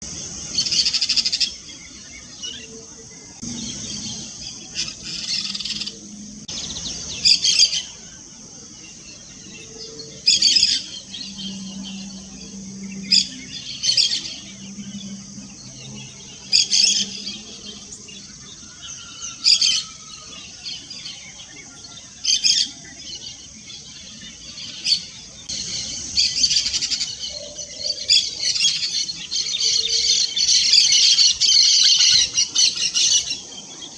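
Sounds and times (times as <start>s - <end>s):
parakeets chirping: 3.4s - 7.9s, 9.3s - 20.8s.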